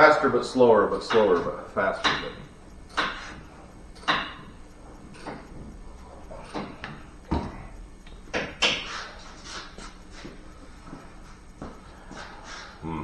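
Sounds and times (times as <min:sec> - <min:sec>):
sharp knocks and clunks: 0:00.9 - 0:09.1.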